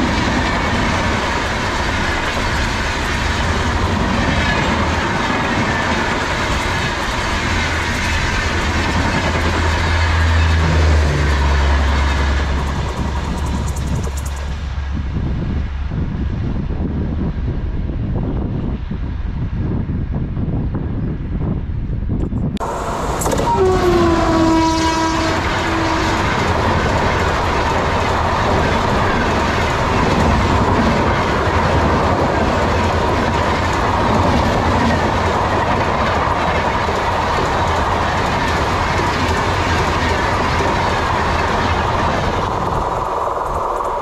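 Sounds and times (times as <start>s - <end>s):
train wheels rumbling and clattering: 0.0s - 44.0s
locomotive horn blaring: 10.1s - 12.8s, 22.7s - 26.9s.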